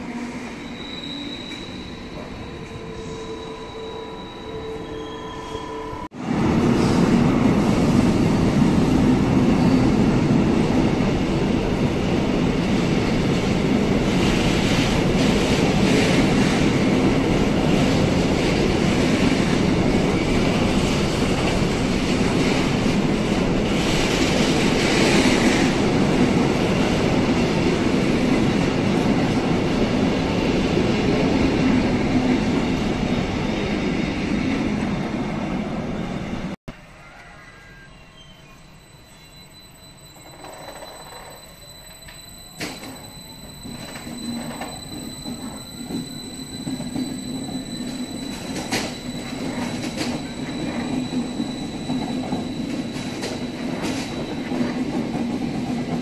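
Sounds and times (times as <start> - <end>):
freight train rolling past: 37.7 - 56.0.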